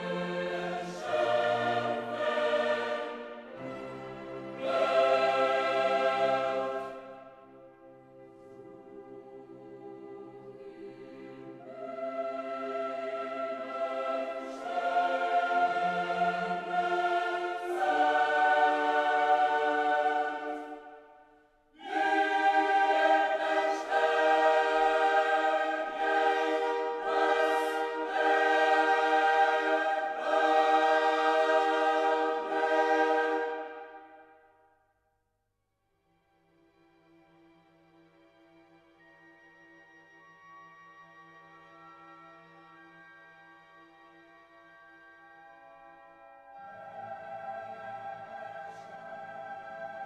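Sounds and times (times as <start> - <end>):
choir singing held chords: 0.0 - 34.6, 45.6 - 50.0.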